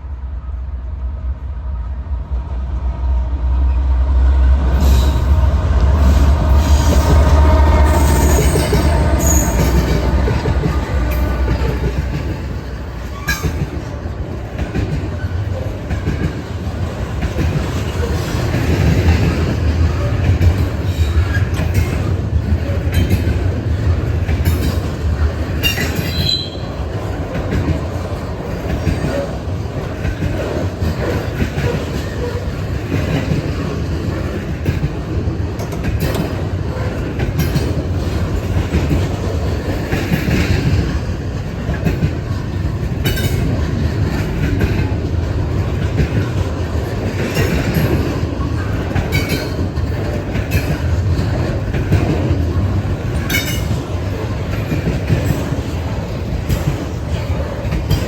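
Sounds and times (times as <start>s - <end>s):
freight train rumbling: 0.0s - 58.0s
wheel squeals: 7.8s - 10.0s
wheels clicking over rail joints: 8.4s - 58.0s.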